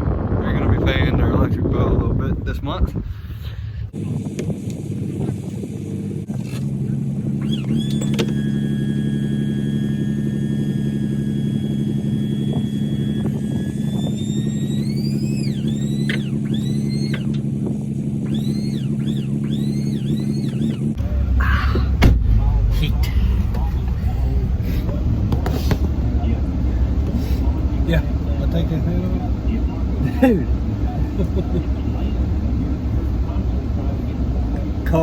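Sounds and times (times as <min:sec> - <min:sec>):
vehicle engine idling: 0:02.6 - 0:35.0
high whistling: 0:07.4 - 0:17.4, 0:18.2 - 0:20.9.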